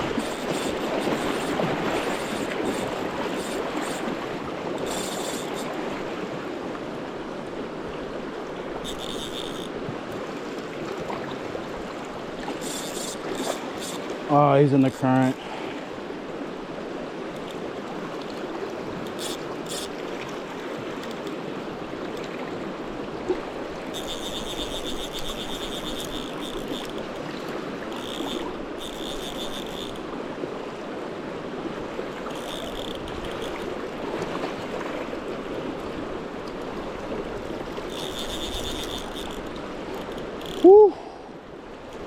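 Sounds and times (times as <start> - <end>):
fishing reel clicking: 0.0 - 6.0, 8.8 - 10.2, 12.5 - 14.2, 17.3 - 17.6, 19.0 - 20.4, 21.0 - 21.4, 23.8 - 30.2, 32.2 - 33.8, 37.2 - 40.9
river water rushing: 0.0 - 8.9.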